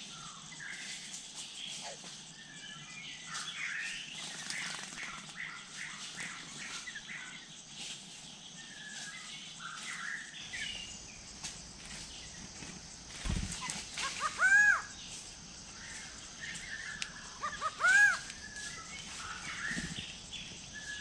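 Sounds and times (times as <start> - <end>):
high insect hiss: 0.0 - 21.0
birds chirping and whistling: 8.8 - 21.0.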